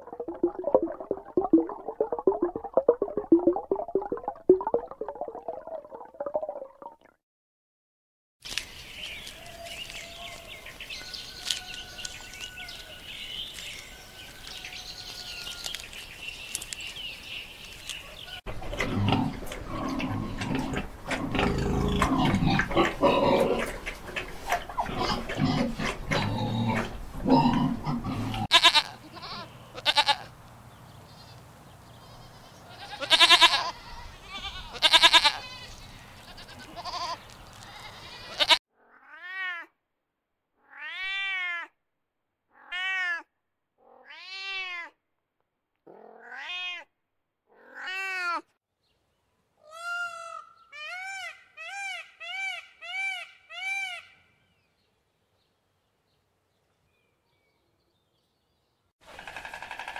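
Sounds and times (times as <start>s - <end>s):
pigs grunting and squealing: 18.5s - 28.9s
goats bleating: 28.5s - 30.3s, 32.0s - 38.6s.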